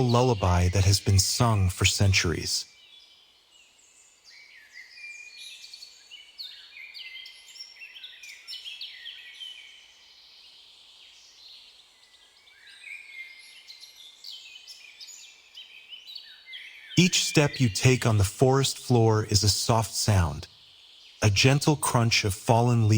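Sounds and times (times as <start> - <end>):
small birds chirping and trilling: 2.6 - 17.0, 20.5 - 21.2.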